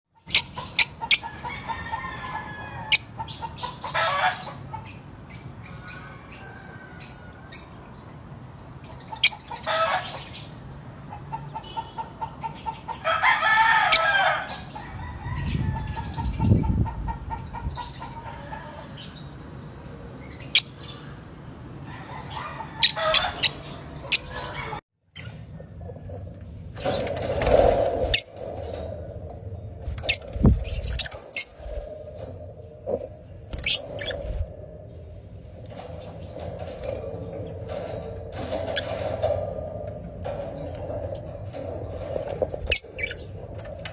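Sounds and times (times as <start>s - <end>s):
lovebirds squawking: 21.9s - 24.8s.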